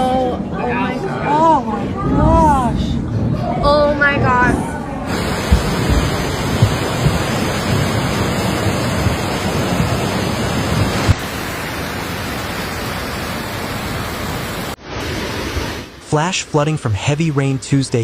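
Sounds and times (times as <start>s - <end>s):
floodwater roaring: 1.6s - 18.0s
low thuds: 5.1s - 11.3s.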